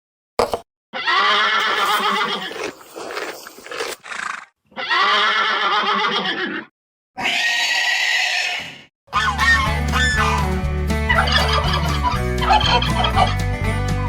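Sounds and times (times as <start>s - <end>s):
horse whinnying: 3.8s - 9.4s
animal call: 11.1s - 13.4s.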